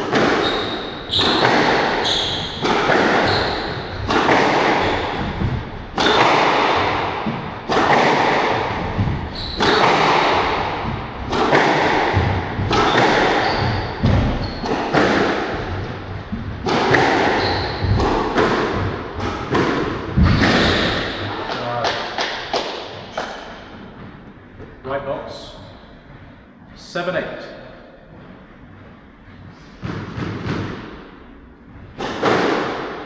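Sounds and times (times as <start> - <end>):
squash ball smacks: 0.0 - 23.6, 32.0 - 33.0.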